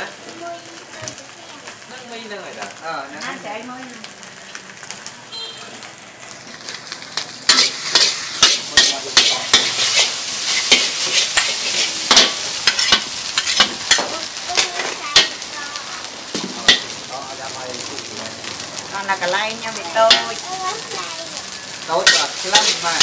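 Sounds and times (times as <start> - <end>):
food sizzling in a pan: 0.0 - 23.0
metal utensil clanking on pan: 7.2 - 15.4, 16.4 - 17.0, 20.0 - 20.4, 22.0 - 23.0.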